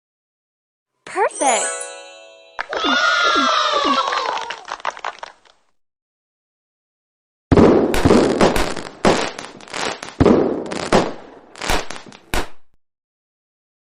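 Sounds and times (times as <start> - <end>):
loud bangs with crackling: 7.5 - 12.6.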